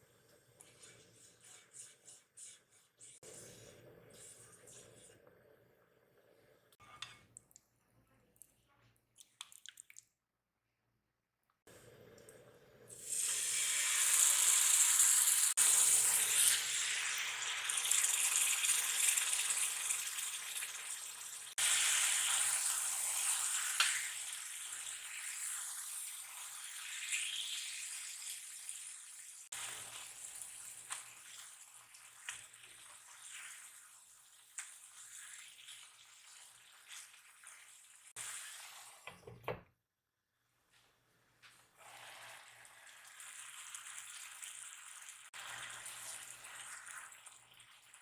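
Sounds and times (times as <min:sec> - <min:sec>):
food sizzling in hot oil: 0:12.9 - 0:39.0, 0:41.8 - 0:48.0.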